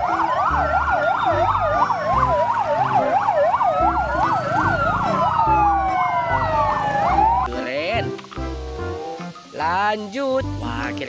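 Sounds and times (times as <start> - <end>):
emergency siren yelp and wail: 0.0 - 8.2
low pulsing beat: 0.0 - 9.0.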